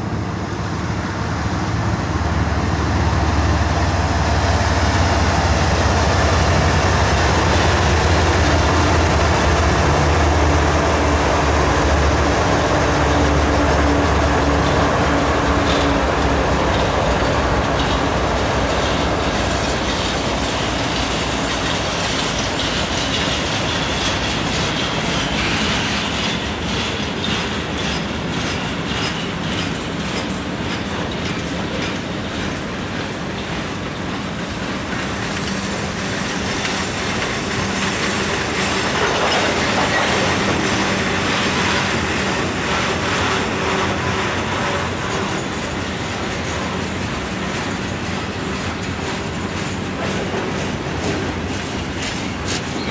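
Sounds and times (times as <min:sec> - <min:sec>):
train wheels clacking: 0:01.1 - 0:52.9
wheel squeal: 0:52.5 - 0:52.9.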